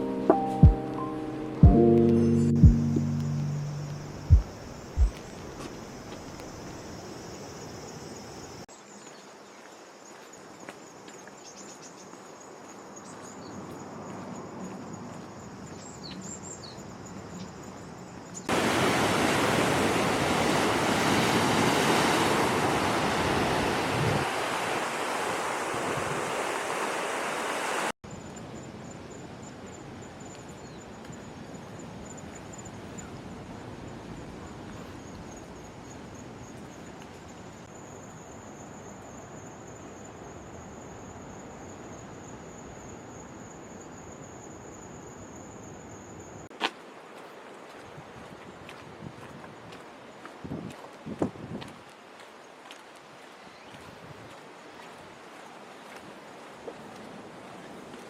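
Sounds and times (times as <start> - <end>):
high insect trill: 1.9 - 18.5
loud rushing water: 18.5 - 28.0.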